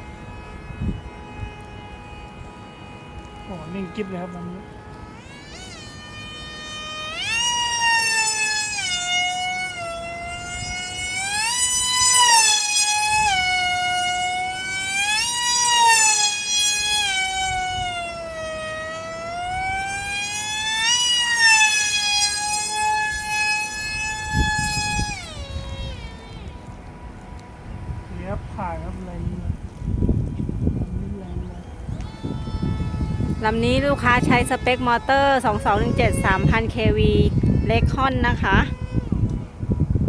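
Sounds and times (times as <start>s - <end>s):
electric model plane motor whining: 0.0s - 40.0s.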